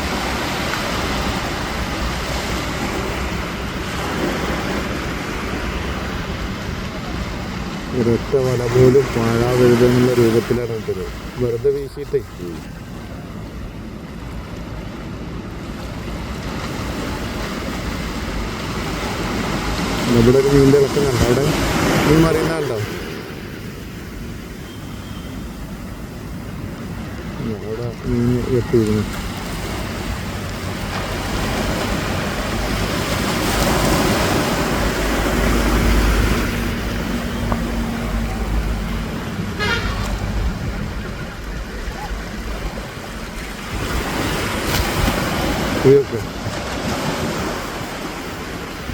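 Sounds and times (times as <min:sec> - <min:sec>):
surf breaking: 0:00.0 - 0:13.7, 0:14.3 - 0:24.8, 0:25.9 - 0:48.9
sea waves washing in: 0:00.0 - 0:48.9
wind buffeting microphone: 0:28.3 - 0:48.9
pitched toot: 0:39.5 - 0:40.4.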